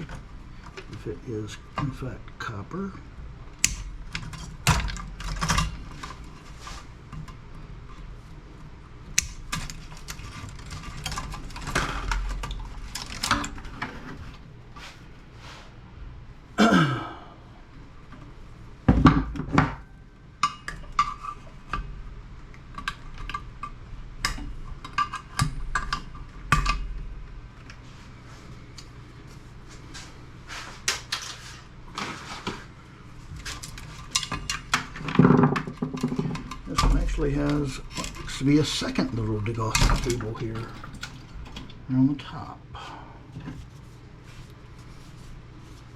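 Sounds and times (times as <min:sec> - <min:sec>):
clattering and clicking of tools: 0:33.4 - 0:41.8.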